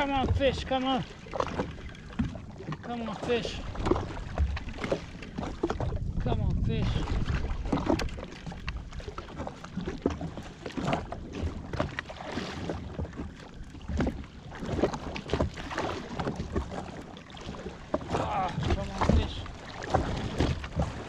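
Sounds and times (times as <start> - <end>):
water splashing against hull: 0.0 - 21.0
wind buffeting microphone: 3.4 - 10.1.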